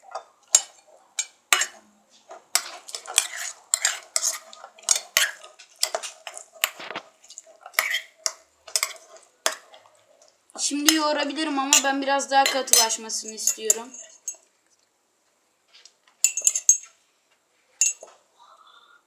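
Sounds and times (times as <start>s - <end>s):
utensil stirring slime in container: 2.5s - 9.9s.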